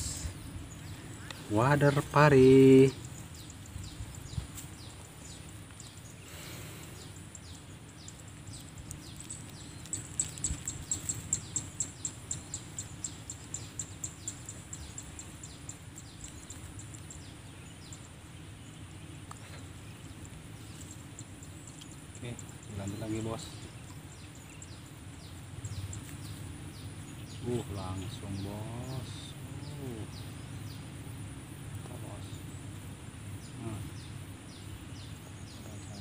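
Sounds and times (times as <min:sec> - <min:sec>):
rapid high chirps: 0:01.1 - 0:18.2.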